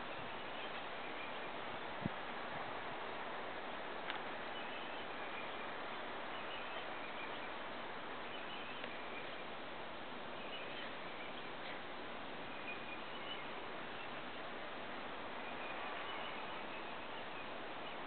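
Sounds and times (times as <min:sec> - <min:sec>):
steady outdoor hiss: 0:00.0 - 0:18.0
faint bird chirps: 0:04.4 - 0:07.6, 0:08.2 - 0:09.5, 0:10.3 - 0:11.8, 0:12.4 - 0:14.5, 0:15.4 - 0:18.0.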